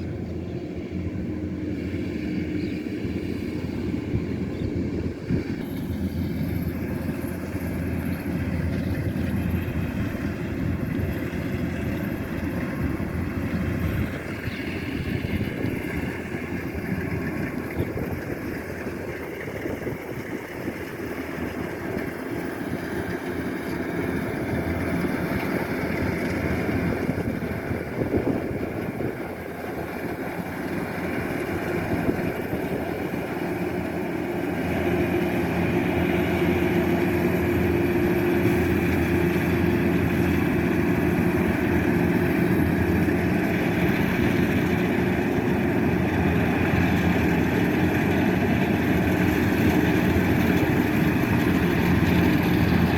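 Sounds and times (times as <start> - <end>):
combine harvester engine running: 0.0 - 52.9.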